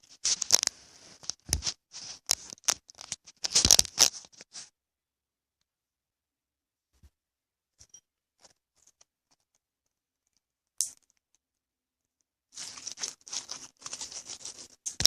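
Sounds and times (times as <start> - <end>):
slime crackling and popping: 2.3 - 4.2.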